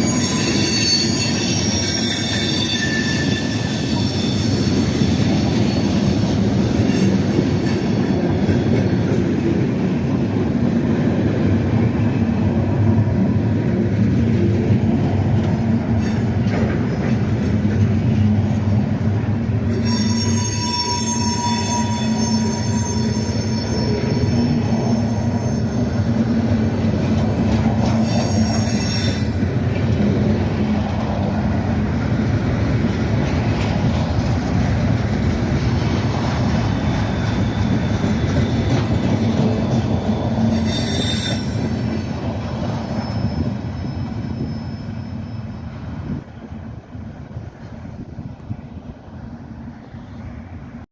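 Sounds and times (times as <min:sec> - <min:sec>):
train wheels squealing: 0:00.0 - 0:09.7, 0:15.7 - 0:18.4, 0:19.6 - 0:29.7, 0:35.4 - 0:46.6
freight train rumbling: 0:00.0 - 0:50.9.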